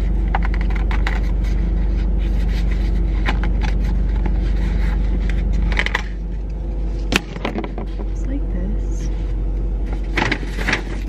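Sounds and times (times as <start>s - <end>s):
car engine idling: 0.0s - 11.0s
paper lid scraping and tapping: 0.2s - 6.2s.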